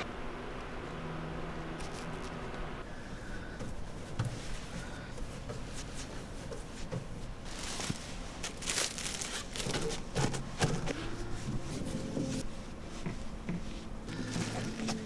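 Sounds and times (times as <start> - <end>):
scraping or rustling: 6.8 - 12.4.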